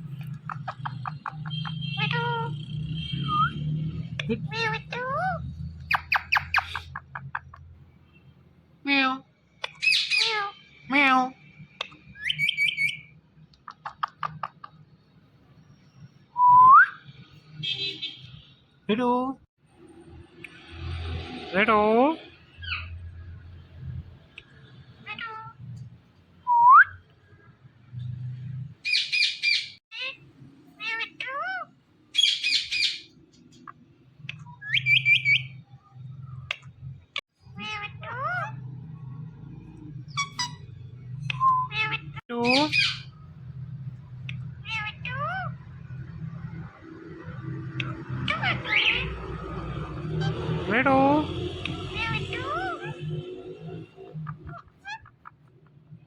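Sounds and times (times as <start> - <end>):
parrot calling: 0.2 - 2.5, 4.4 - 7.7, 8.9 - 10.6, 11.8 - 13.1, 25.0 - 25.7, 28.8 - 35.6, 37.4 - 39.3, 40.1 - 43.2, 44.3 - 46.7, 47.7 - 50.6, 51.6 - 55.6.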